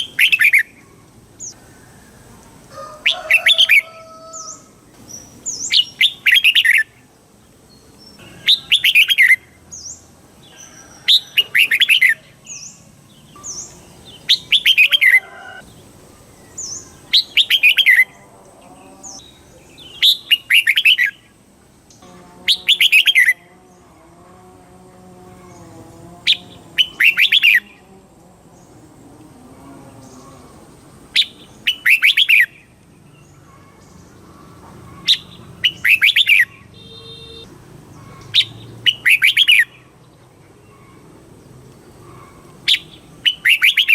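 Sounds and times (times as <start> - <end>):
soft high bird chirps: 3.2 - 7.1, 16.2 - 21.3, 31.2 - 34.0, 34.9 - 40.0, 42.0 - 43.9.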